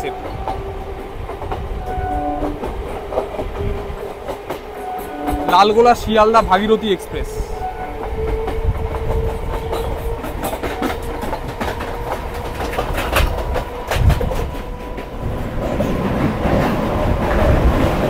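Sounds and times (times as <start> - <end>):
trains rumbling past: 0.0 - 18.0
wheels clicking over rail joints: 7.9 - 18.0.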